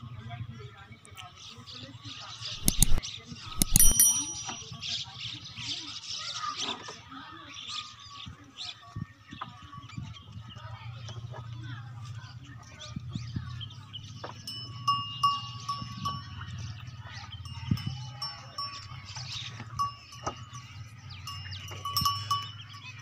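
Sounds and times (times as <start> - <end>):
livestock bells clinking: 2.6 - 5.7, 7.8 - 11.0, 14.0 - 23.0.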